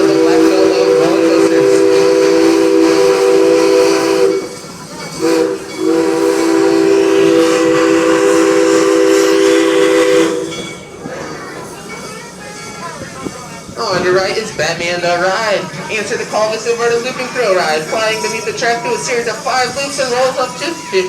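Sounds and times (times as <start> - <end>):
steam locomotive chime whistle: 0.0 - 11.0, 16.5 - 21.0
steam hissing: 0.0 - 21.0.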